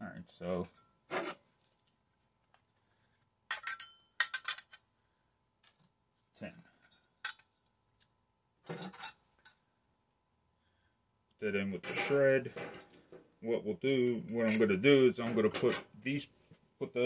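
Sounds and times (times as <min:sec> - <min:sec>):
metal parts clinking: 0:03.5 - 0:04.8, 0:06.8 - 0:07.7.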